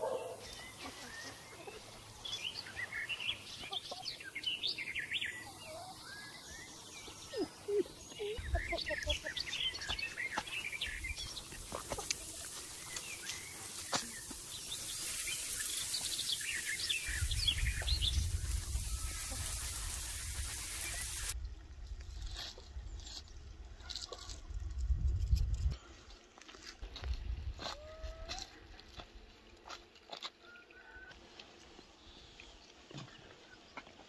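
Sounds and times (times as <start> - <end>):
small birds chirping: 0.0 - 21.5
wind rumble on microphone: 17.1 - 25.8.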